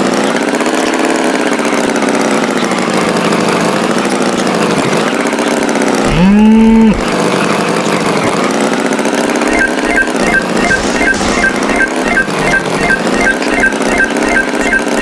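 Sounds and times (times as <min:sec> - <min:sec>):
tractor engine running: 0:00.0 - 0:15.0
cattle mooing: 0:06.0 - 0:07.2
quick high beeping: 0:09.5 - 0:15.0.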